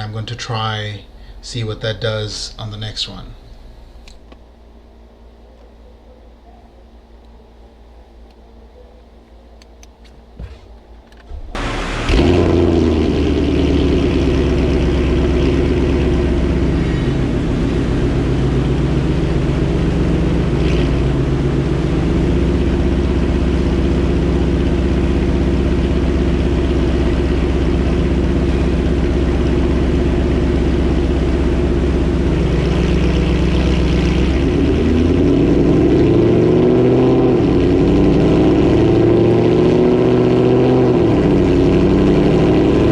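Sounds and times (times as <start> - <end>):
car engine revving on dyno: 11.3 - 42.9.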